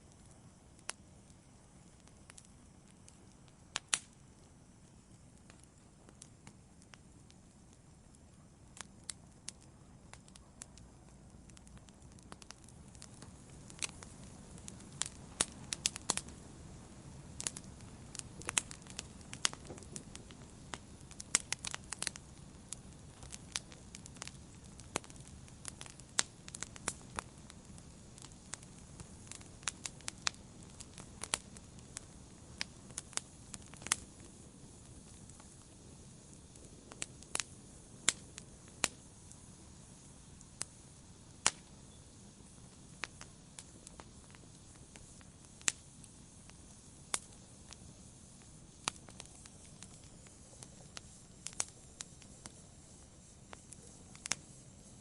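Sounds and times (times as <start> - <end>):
campfire pops and crackles: 0.0 - 55.0
soft hiss of flames: 0.0 - 55.0.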